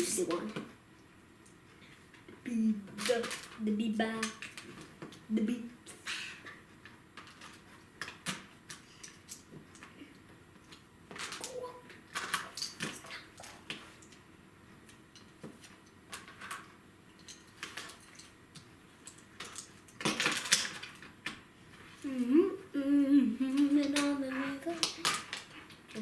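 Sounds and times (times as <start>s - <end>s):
child humming: 11.4s - 11.9s, 22.0s - 24.8s.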